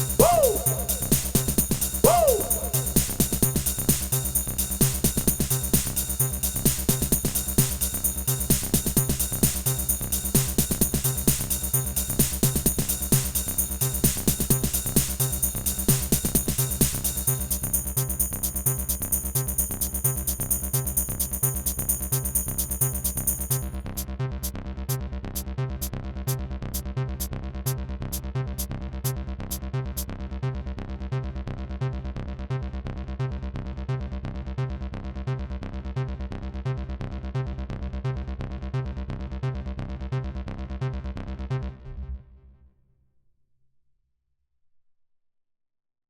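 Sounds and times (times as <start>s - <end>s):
hi-hats ticking: 0.0s - 24.1s
kick and bass line: 0.0s - 30.8s.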